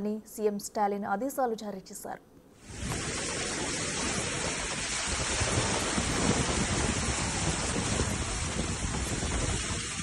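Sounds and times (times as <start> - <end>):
wind: 0.0 - 10.0
heavy rain: 2.6 - 10.0.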